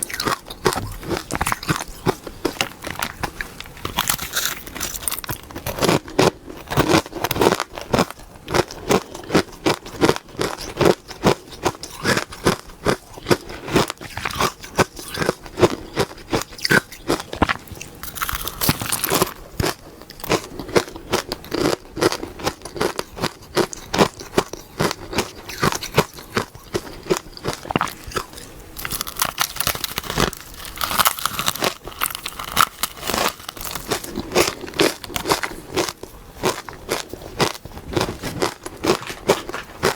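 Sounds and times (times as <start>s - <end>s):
crunching shaved ice: 0.0s - 39.9s.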